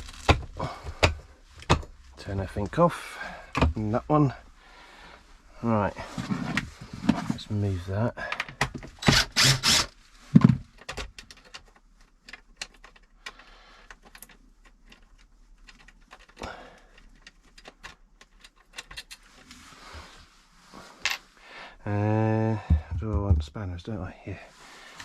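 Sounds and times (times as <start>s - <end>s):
light clicks and rattles: 10.7s - 19.6s.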